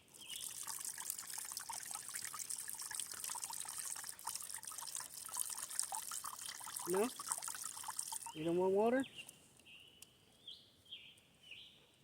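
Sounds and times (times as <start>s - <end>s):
water trickling into a bowl: 0.0s - 9.0s.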